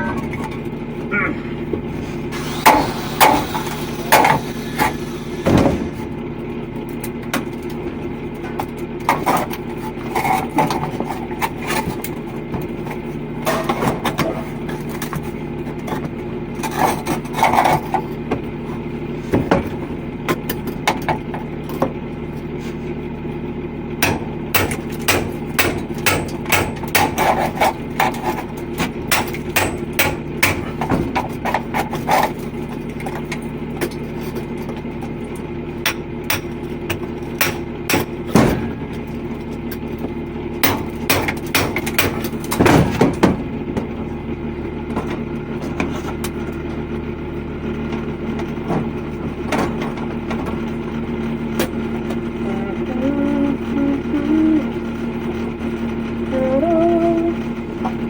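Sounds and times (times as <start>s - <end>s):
machinery drone: 0.0s - 11.8s, 42.4s - 58.0s
hammer strikes: 24.0s - 27.2s, 29.1s - 31.0s, 37.4s - 38.8s, 40.6s - 43.0s.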